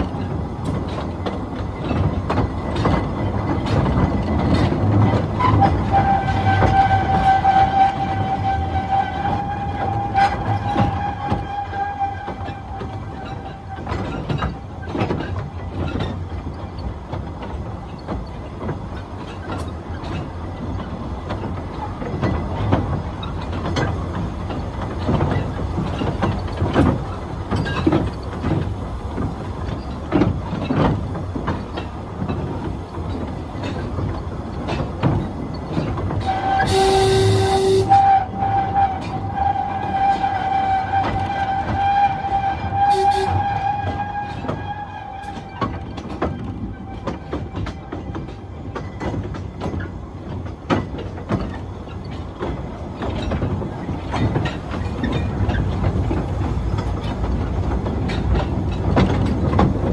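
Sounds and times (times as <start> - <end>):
train rumbling: 0.0 - 59.9
wheels clicking over rail joints: 0.0 - 59.9
train horn blast: 5.4 - 13.8, 36.2 - 45.4.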